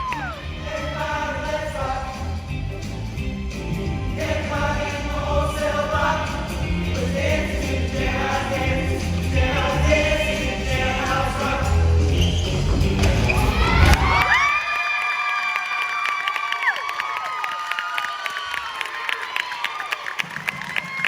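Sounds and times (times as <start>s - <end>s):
instrumental backing with bass beat: 0.0s - 14.2s
choir singing a rock number: 0.0s - 14.4s.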